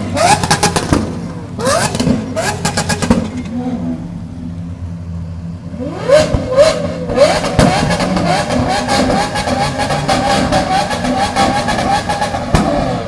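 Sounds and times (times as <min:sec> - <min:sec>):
car engine revving: 0:00.0 - 0:04.9, 0:05.6 - 0:13.0.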